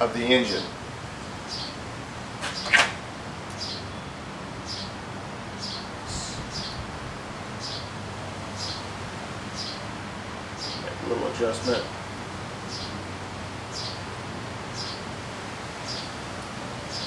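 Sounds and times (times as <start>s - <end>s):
bird chirping: 1.5s - 1.8s, 3.6s - 5.0s, 5.6s - 6.8s, 7.6s - 7.9s, 8.6s - 8.9s, 9.5s - 9.8s, 10.6s - 11.0s, 12.7s - 13.0s, 13.7s - 14.0s, 14.7s - 15.1s, 15.8s - 16.2s.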